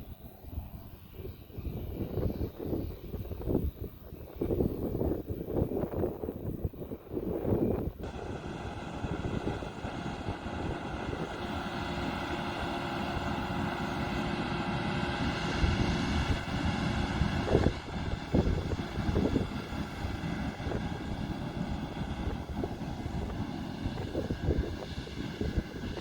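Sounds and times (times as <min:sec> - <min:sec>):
machinery whine: 0:00.0 - 0:26.0
wind buffeting microphone: 0:00.0 - 0:26.0
diesel machinery running: 0:06.4 - 0:26.0.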